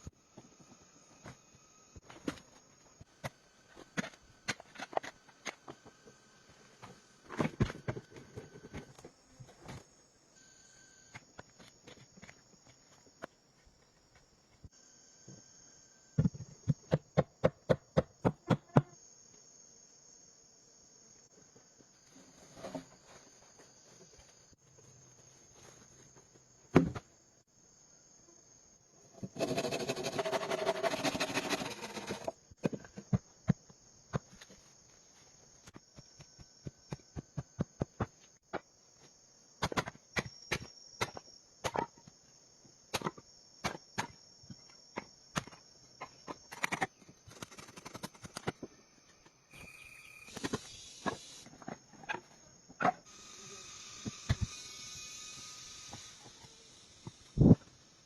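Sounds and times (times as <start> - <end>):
insects chirring: 0.0 - 58.0.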